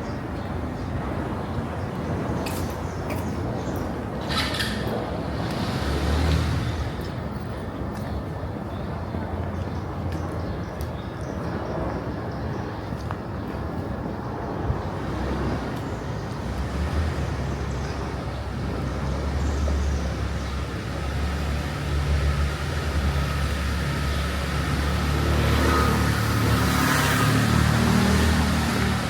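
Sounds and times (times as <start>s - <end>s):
tyres passing: 0.0s - 29.0s
car engines running: 14.6s - 29.0s.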